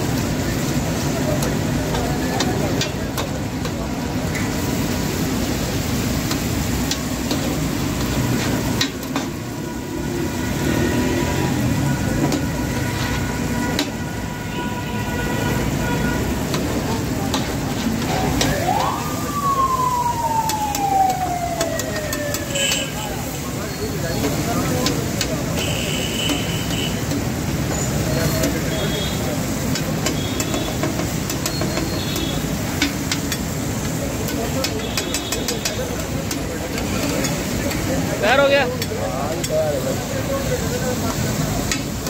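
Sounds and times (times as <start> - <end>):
liver sizzling on a griddle: 0.0 - 42.0
siren-like wail: 18.1 - 23.6.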